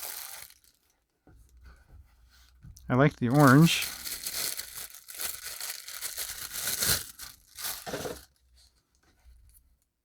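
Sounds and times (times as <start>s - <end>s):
plastic packaging tearing and crinkling: 0.0s - 0.9s, 3.2s - 8.4s.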